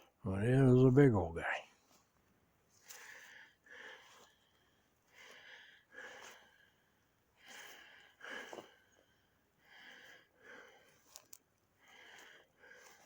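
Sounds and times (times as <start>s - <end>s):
soft breathing: 2.7s - 13.0s.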